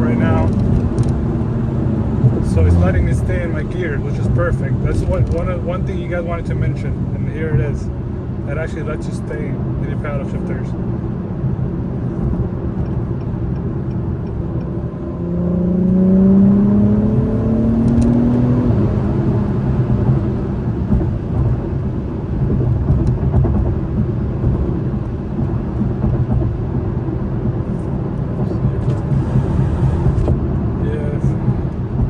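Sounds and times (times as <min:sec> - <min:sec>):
car engine accelerating: 0:00.0 - 0:32.0
road and tyre noise: 0:00.0 - 0:32.0.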